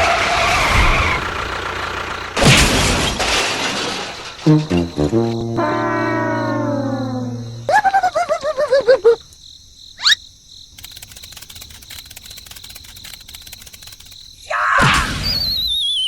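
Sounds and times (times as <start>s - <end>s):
rising zip: 4.4s - 9.0s
cricket-like chirring: 4.4s - 14.6s
wobbling warbling tone: 4.8s - 8.7s.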